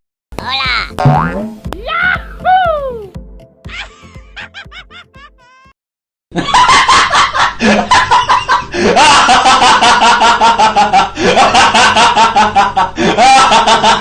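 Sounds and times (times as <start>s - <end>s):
high-pitched staccato laughter: 3.7s - 5.7s.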